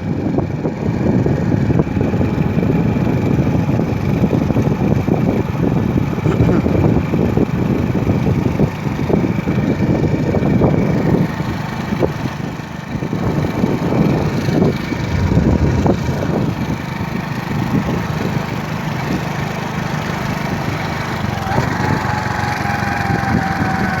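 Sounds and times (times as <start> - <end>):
wind noise on microphone: 13.1 - 18.4
motorcycle engine running: 14.6 - 17.2
thin whine gliding down: 14.9 - 16.8.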